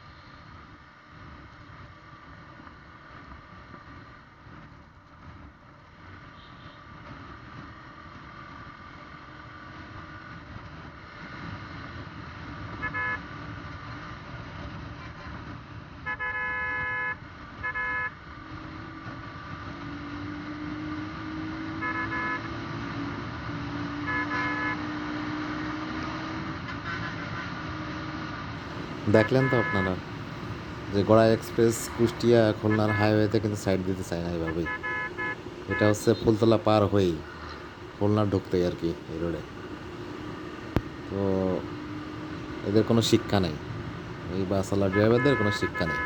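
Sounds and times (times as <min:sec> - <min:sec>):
engine and road noise: 0:00.0 - 0:46.0
vehicle horn honking: 0:21.8 - 0:22.5, 0:24.0 - 0:24.9, 0:28.6 - 0:46.0
engine pitch climbing: 0:28.6 - 0:46.0.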